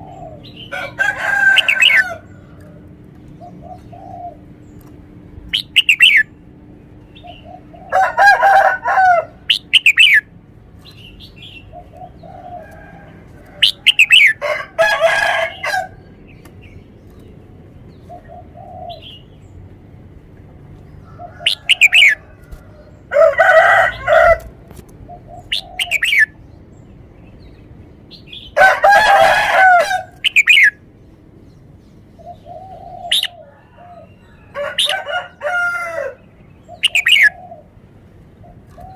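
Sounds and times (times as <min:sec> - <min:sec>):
bird singing whistled phrases: 0:05.6 - 0:06.3.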